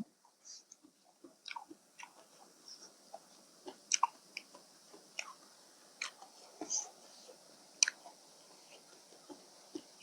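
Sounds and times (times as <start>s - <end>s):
wet chewing clicks and smacks: 0.7s - 2.4s, 3.6s - 5.4s, 6.0s - 6.4s, 7.8s - 8.2s.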